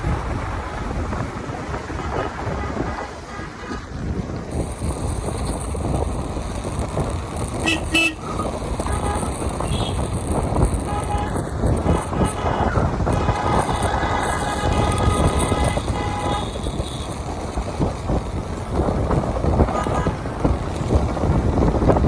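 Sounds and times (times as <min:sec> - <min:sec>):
wind rush on microphone: 0:00.0 - 0:22.0
horn toots: 0:07.6 - 0:10.1, 0:10.8 - 0:17.0.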